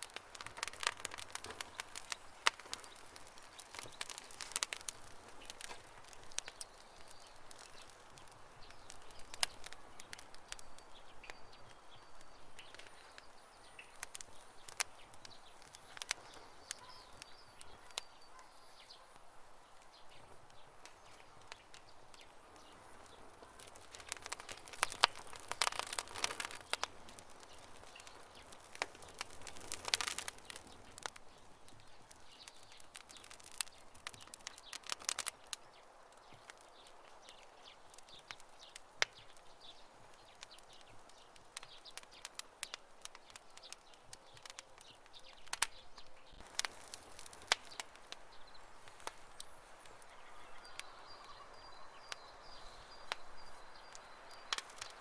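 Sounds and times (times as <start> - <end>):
campfire crackling: 0.0 - 55.0.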